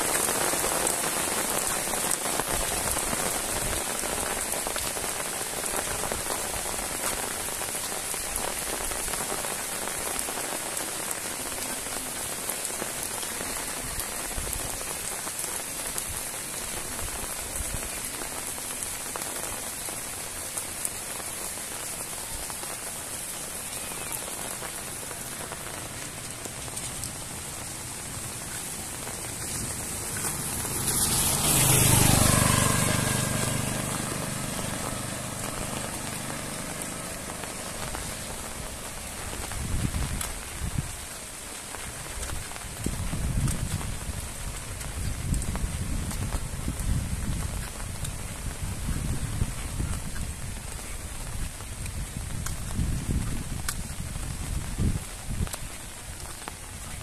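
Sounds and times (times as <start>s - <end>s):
heavy rain on a paved road: 0.0s - 57.0s
vehicle engine approaching: 26.2s - 39.0s.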